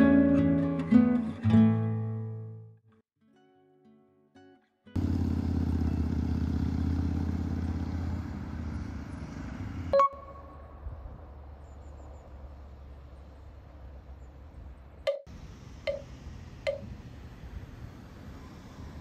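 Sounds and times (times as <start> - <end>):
vehicle engine and road rumble: 5.0 - 19.0
sharp click: 16.7 - 16.9.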